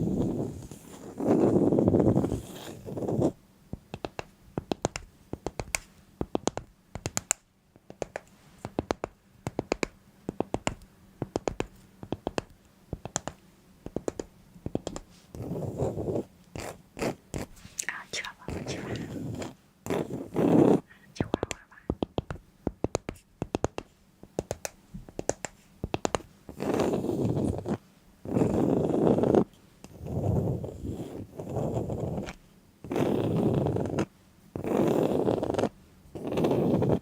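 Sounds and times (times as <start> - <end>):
close-up scraping rustle: 0.0 - 3.3
sharp clicks and taps: 3.8 - 15.1, 21.2 - 26.3.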